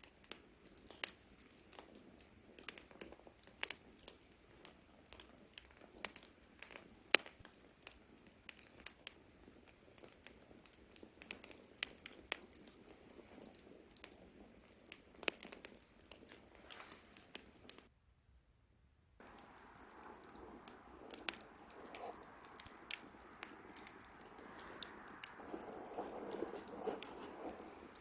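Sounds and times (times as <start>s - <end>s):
campfire crackling: 0.0s - 17.9s, 19.2s - 28.0s
sharp pops: 19.2s - 28.0s.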